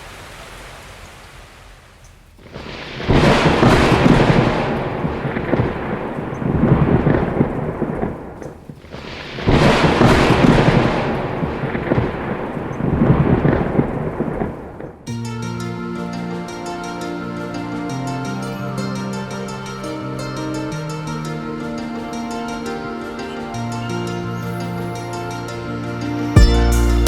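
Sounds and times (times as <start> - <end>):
rain hissing: 0.0 - 15.0
thunder cracking and rumbling: 2.3 - 15.1.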